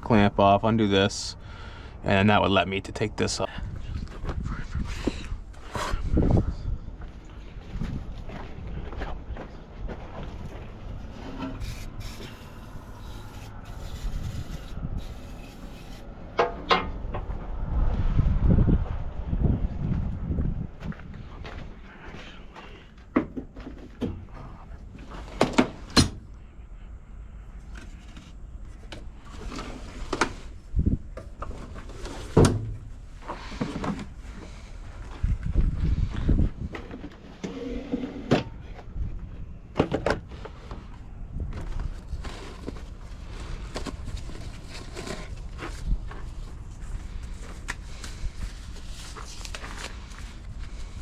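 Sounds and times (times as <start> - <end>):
low rumble: 12.4 - 22.1
hand tools and metal parts clunking: 16.3 - 17.3, 22.7 - 26.2.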